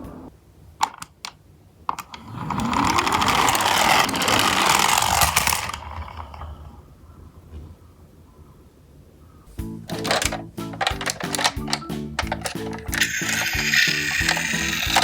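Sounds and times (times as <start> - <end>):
toy truck gears whirring: 1.9 - 6.8, 9.9 - 15.0.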